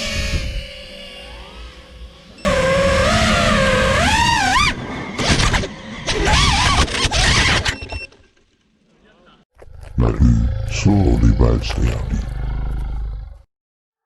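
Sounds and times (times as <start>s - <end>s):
quadcopter motors whining: 0.0s - 8.0s.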